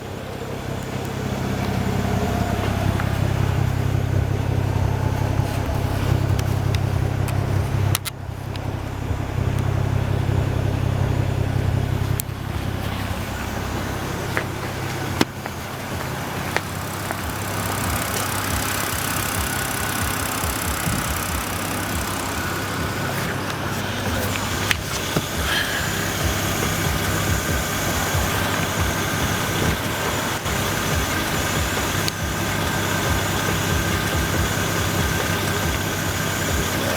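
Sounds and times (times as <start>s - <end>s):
car exhaust droning: 0.0s - 36.9s
sharp clicks: 5.6s - 8.7s, 14.2s - 36.9s.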